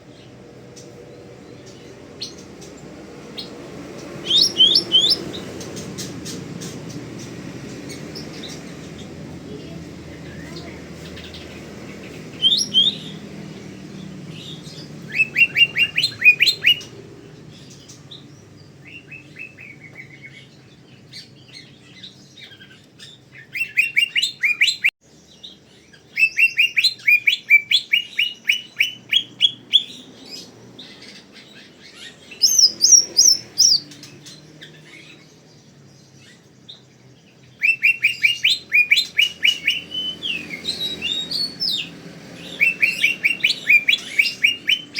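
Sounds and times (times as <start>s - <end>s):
bird rapid chirping song: 0.0s - 44.9s.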